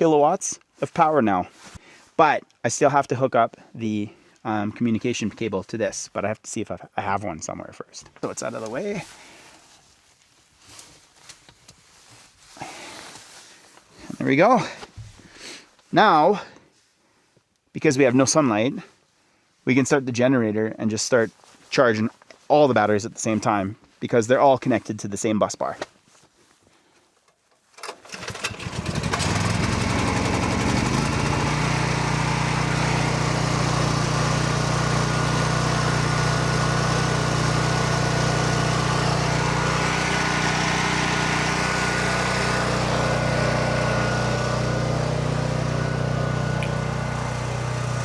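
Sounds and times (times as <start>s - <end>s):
generator engine running: 28.0s - 48.0s.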